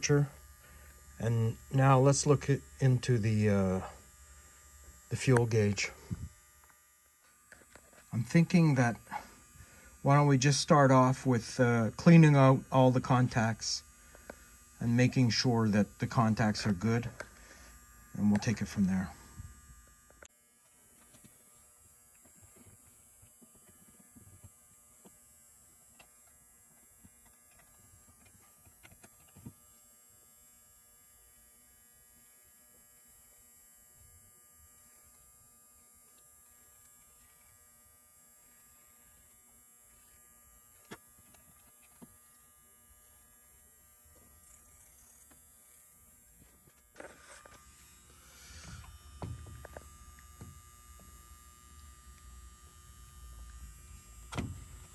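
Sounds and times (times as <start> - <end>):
faint electrical hum: 0.0 - 54.9
handling noise: 46.4 - 51.1.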